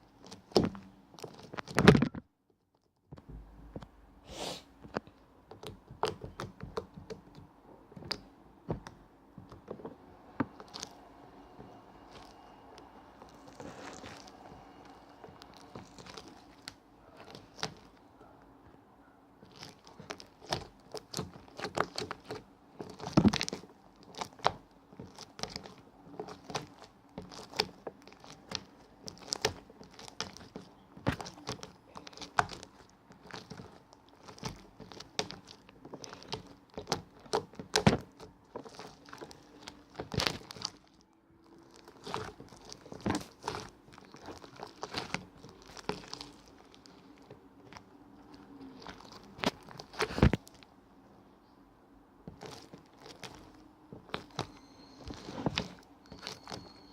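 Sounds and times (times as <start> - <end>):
crinkling and crackling handling: 0.0 - 4.0, 4.8 - 56.9.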